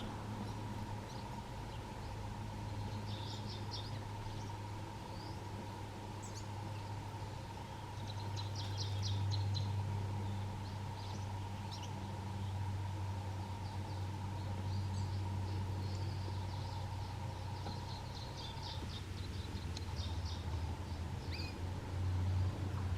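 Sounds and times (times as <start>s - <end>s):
steady low hum: 0.0s - 22.9s
canaries chirping: 7.9s - 12.0s, 21.2s - 21.6s.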